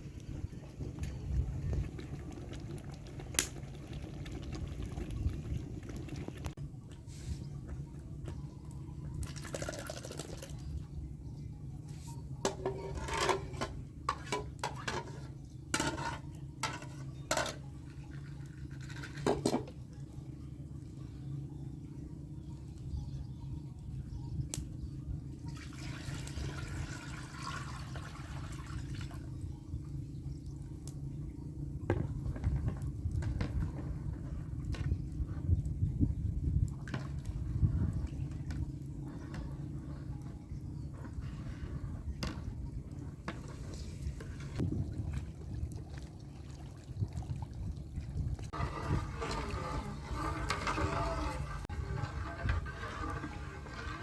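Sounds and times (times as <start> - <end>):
liquid stirred and poured: 0.1 - 10.9, 12.2 - 20.5, 31.9 - 54.0.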